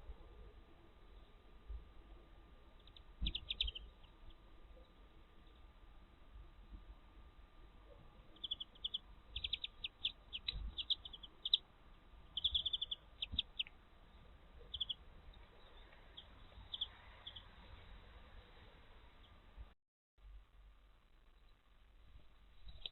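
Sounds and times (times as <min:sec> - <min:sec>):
small birds chirping: 0:01.0 - 0:05.8, 0:07.6 - 0:19.5, 0:22.5 - 0:22.9.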